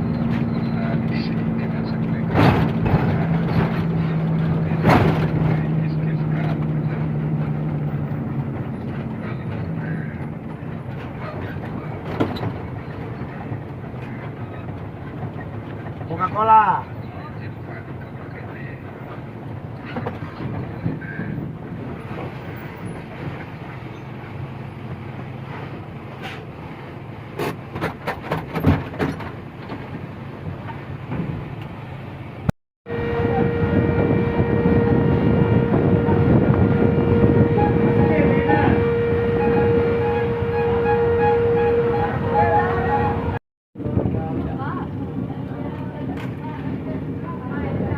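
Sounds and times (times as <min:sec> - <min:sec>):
truck engine hum: 0:00.0 - 0:47.9
knocks and rattles: 0:27.4 - 0:31.6.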